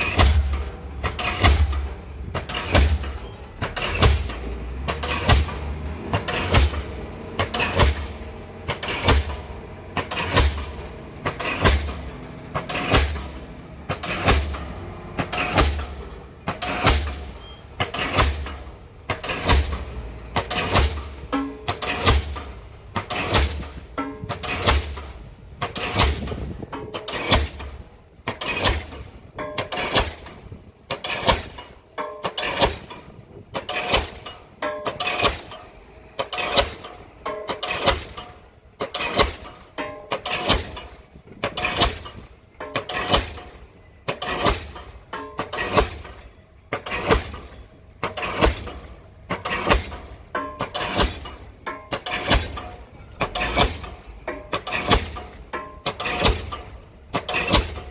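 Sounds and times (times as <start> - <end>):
pile hammer blows: 0.0 - 57.9.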